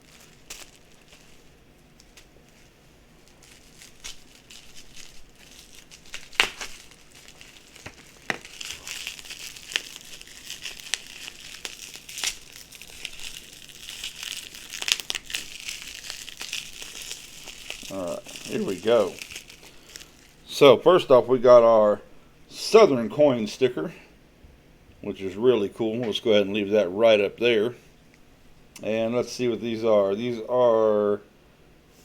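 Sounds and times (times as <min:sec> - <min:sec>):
packaging crinkling and tearing: 0:00.0 - 0:21.6.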